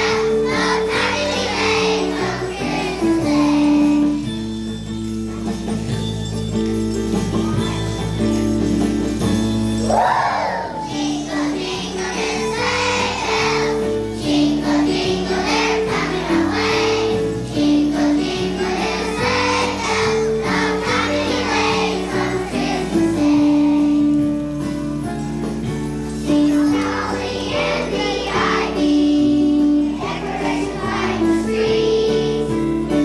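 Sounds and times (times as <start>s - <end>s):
children singing together: 0.0s - 4.3s, 9.8s - 24.6s, 26.1s - 33.0s
instrumental accompaniment: 0.0s - 33.0s.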